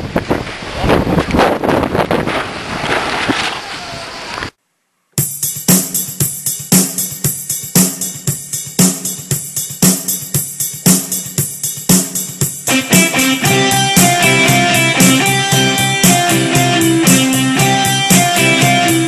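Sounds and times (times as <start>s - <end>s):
wind buffeting microphone: 0.0s - 4.5s
rock music with drum kit: 5.2s - 19.0s.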